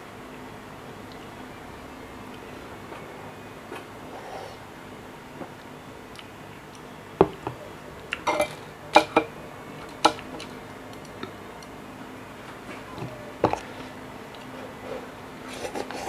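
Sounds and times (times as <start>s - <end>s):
utensil clinking against a bowl: 8.1s - 9.3s.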